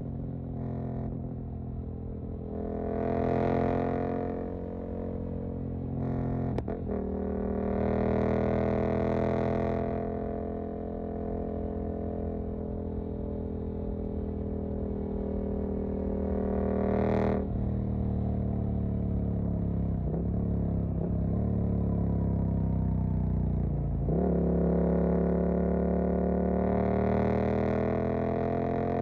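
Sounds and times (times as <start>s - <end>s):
motorcycle engine revving: 14.1s - 29.0s.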